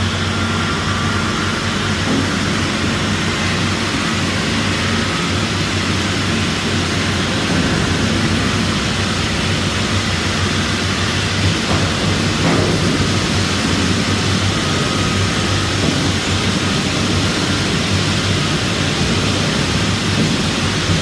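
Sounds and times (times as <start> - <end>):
heavy engine running: 0.0 - 21.0.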